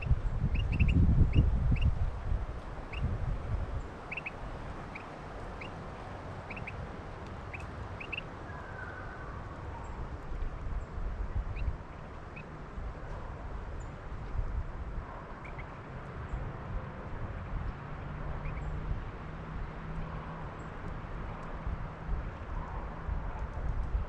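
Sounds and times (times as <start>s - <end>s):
small bird chirping: 0.0s - 1.9s, 2.9s - 3.1s, 4.1s - 5.8s, 6.5s - 6.8s, 7.5s - 8.9s, 15.4s - 15.7s
wind on microphone: 0.0s - 6.8s, 7.4s - 15.7s, 16.3s - 24.0s.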